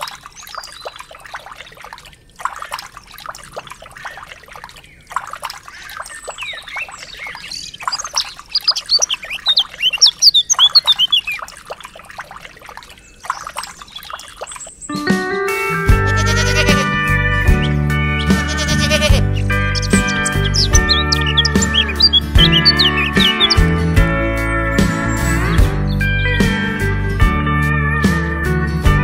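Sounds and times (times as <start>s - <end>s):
birds chirping: 0.0s - 1.4s, 2.9s - 15.2s, 16.1s - 26.1s
water trickling into plastic trough: 0.0s - 14.9s.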